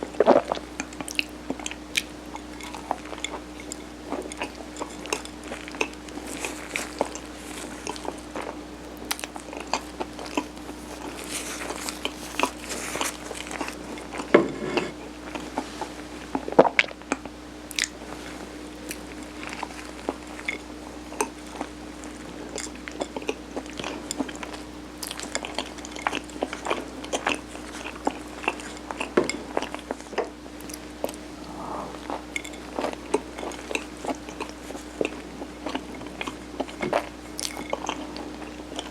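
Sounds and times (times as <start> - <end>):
faint steady hum: 0.0 - 38.9
chewing with mouth clicks: 0.1 - 14.3, 16.3 - 18.0, 18.8 - 38.9.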